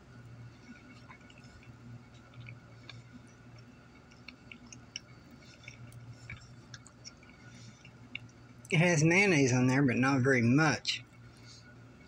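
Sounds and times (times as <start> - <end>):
steady low hum: 0.0 - 12.0
person chewing: 0.6 - 8.4.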